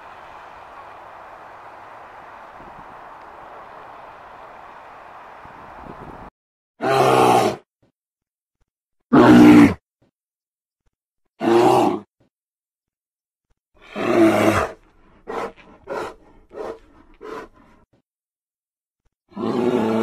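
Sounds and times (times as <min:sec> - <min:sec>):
bear growling: 0:13.8 - 0:17.8, 0:19.3 - 0:20.0
bear grunting: 0:13.8 - 0:17.8.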